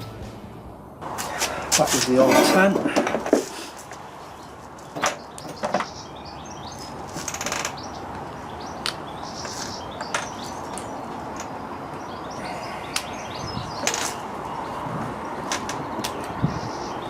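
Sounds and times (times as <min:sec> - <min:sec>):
small birds chirping: 0:03.4 - 0:17.0
wind noise: 0:12.5 - 0:17.0.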